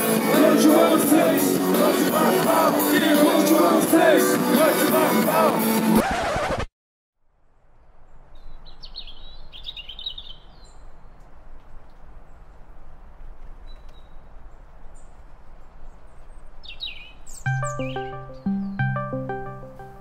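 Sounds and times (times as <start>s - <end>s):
loud music: 0.0s - 6.0s, 17.5s - 20.0s
songbirds chirping: 7.8s - 20.0s.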